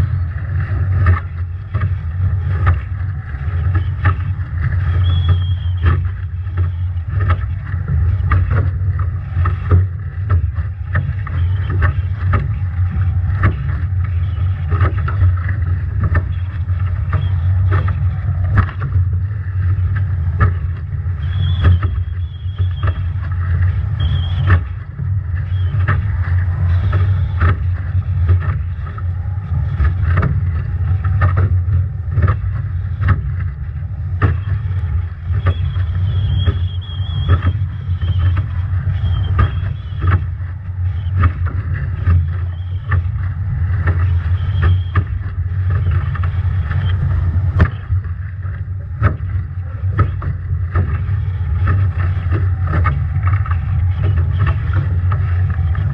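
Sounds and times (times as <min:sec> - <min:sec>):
spray and waves hitting boat: 0:00.0 - 0:55.9
high whistle: 0:04.9 - 0:06.0, 0:21.2 - 0:23.1, 0:23.9 - 0:24.6, 0:35.4 - 0:40.1, 0:44.3 - 0:45.1.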